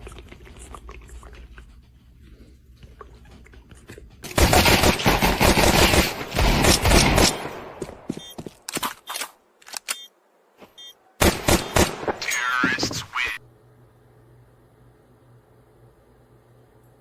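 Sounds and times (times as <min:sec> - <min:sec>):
sharp clicks: 0:08.6 - 0:10.1.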